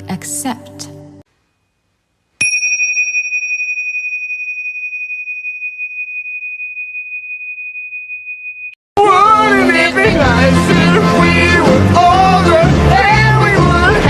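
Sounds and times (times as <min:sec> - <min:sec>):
high ringing tone: 0:02.4 - 0:08.8.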